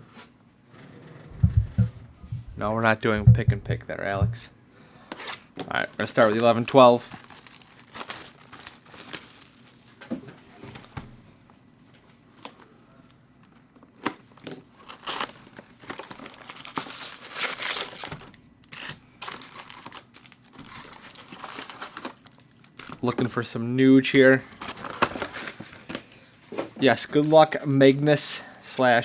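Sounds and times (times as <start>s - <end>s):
wrappers tearing and crinkling: 5.2s - 10.0s, 14.8s - 23.0s.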